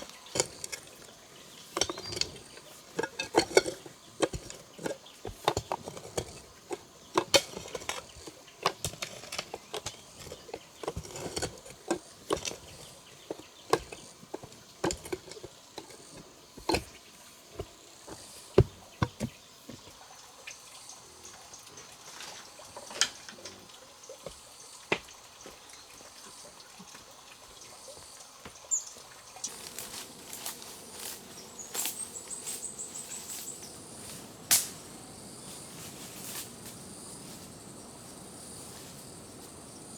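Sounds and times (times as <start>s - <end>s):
insects chirping in trills: 0.0s - 39.9s
sharp knocks and taps: 17.6s - 19.9s.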